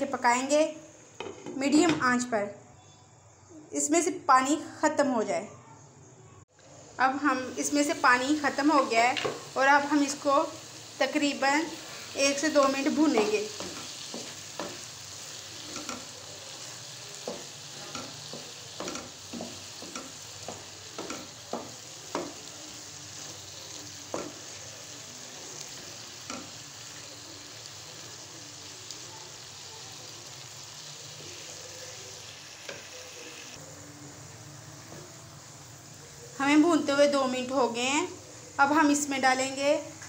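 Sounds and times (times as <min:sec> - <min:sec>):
pumpkin sizzling in oil: 0:06.8 - 0:40.0
wooden spatula scraping a pan: 0:11.6 - 0:22.5.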